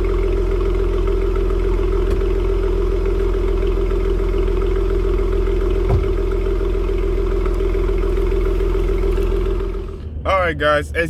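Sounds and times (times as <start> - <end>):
car engine idling: 0.0 - 11.0
short knock: 5.8 - 6.2.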